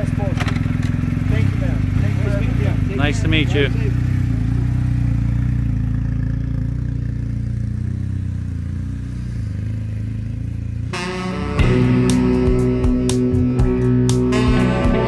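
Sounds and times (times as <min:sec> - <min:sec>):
motorcycle engine running at low revs: 0:00.0 - 0:15.0
guitar music: 0:10.9 - 0:15.0.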